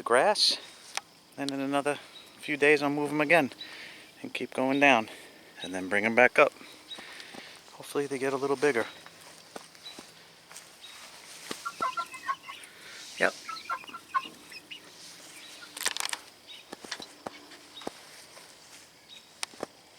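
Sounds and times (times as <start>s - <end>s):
chickens making high calls: 10.9s - 17.9s.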